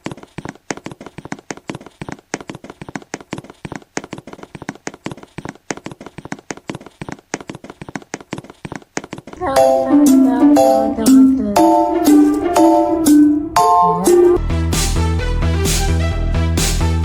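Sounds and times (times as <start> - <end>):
rapid uneven clicking: 0.0 - 9.4.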